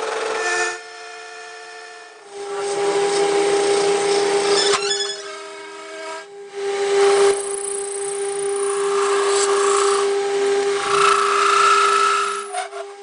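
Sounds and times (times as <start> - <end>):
power tool whining on metal: 0.0 - 13.0.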